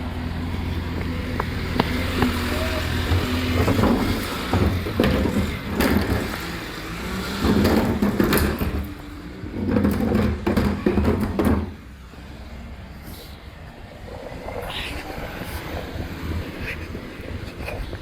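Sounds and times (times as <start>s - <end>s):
diesel truck engine running: 0.0s - 18.0s
clattering knocks: 7.4s - 11.8s.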